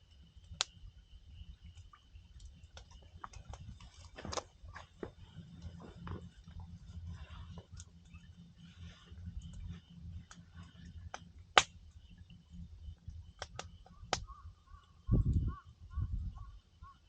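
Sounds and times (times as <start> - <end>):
campfire crackling and popping: 0.1 - 14.4.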